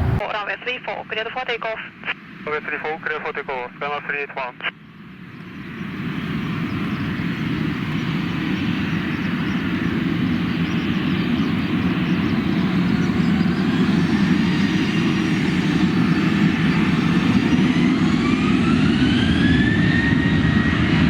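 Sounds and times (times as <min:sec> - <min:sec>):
jet engines at takeoff: 0:00.0 - 0:21.0
faint rising whine: 0:05.1 - 0:20.5.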